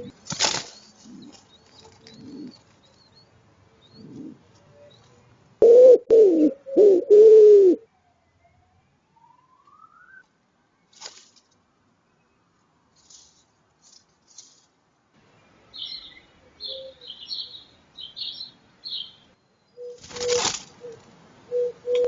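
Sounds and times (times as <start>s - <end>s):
bird chirping: 0.0s - 5.3s, 15.4s - 22.0s.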